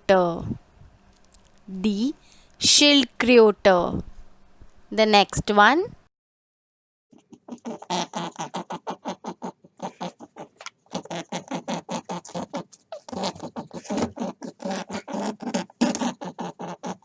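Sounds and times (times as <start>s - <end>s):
rabbit squeaks and grunts: 7.2s - 17.0s.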